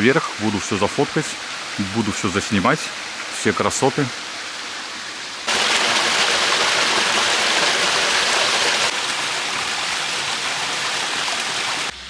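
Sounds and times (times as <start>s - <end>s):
stream running over rocks: 0.0s - 12.0s.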